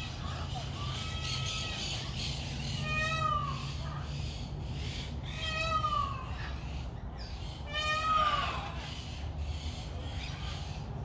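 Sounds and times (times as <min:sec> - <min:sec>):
bird meow-like wailing call: 0:00.8 - 0:03.8, 0:05.2 - 0:06.6, 0:07.4 - 0:09.0.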